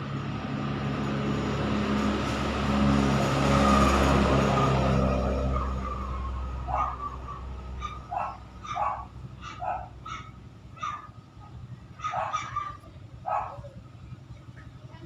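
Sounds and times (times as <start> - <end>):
low vehicle engine hum: 0.0 - 15.0
dog barking: 5.5 - 13.8.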